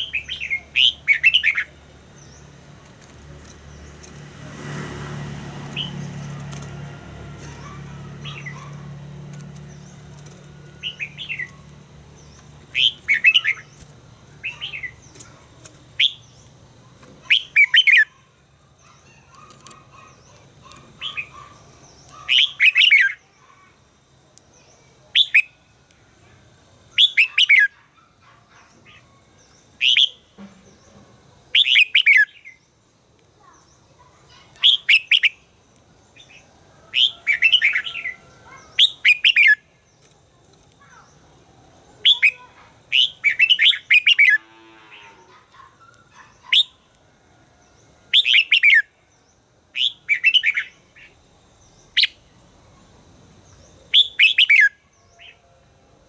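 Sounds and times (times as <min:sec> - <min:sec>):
bird warbling: 0:12.6 - 0:16.2, 0:42.0 - 0:46.8.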